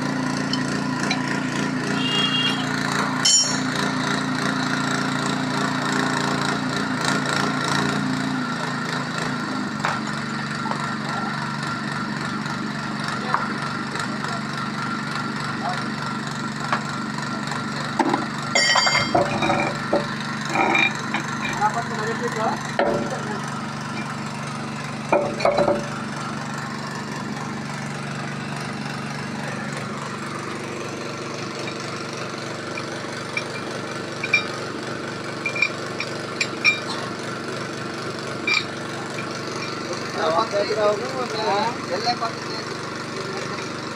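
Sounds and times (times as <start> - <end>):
engine idling: 0.0 - 43.9
people talking: 10.5 - 11.4, 12.7 - 14.6, 15.6 - 15.9, 20.6 - 23.6, 38.9 - 43.8.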